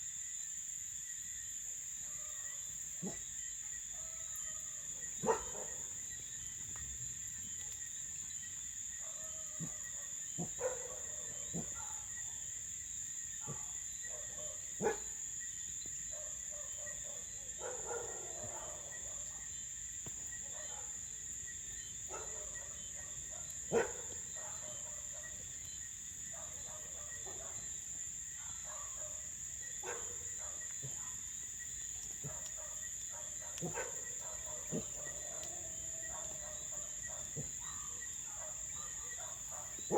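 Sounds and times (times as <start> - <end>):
crickets chirring: 0.0 - 39.9
campfire popping: 5.8 - 9.0, 18.4 - 28.4, 29.2 - 38.2.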